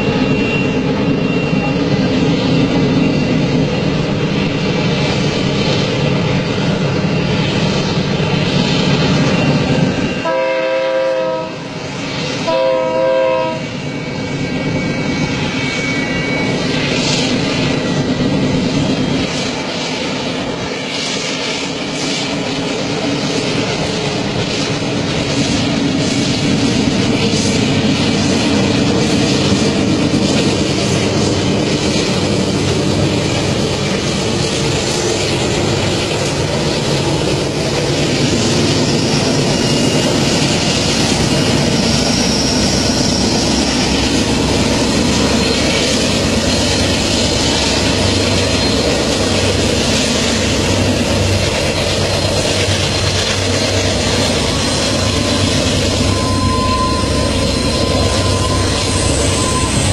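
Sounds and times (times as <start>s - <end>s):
thin squeal: 0.0s - 5.9s, 6.5s - 10.2s, 13.6s - 20.1s, 34.6s - 59.9s
train wheels rumbling on rails: 0.0s - 59.9s.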